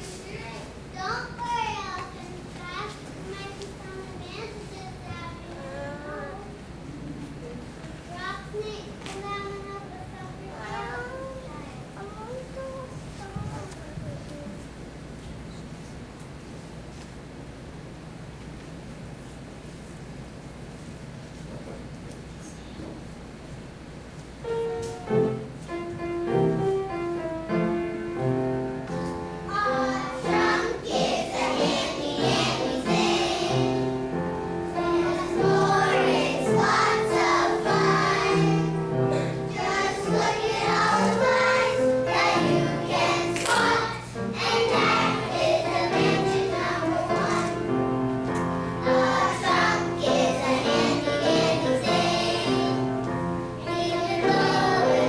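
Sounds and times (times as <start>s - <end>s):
children singing together: 29.5s - 48.0s, 48.8s - 55.0s.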